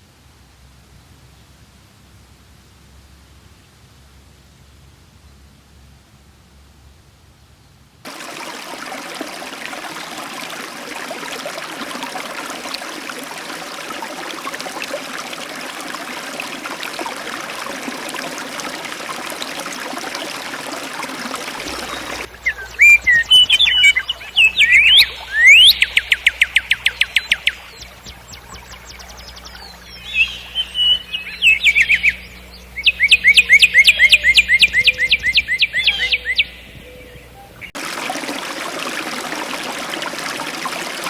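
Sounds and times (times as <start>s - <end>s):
stream water rushing: 8.1s - 41.0s
songbirds calling: 21.0s - 37.8s
fast bird trill: 21.6s - 37.7s.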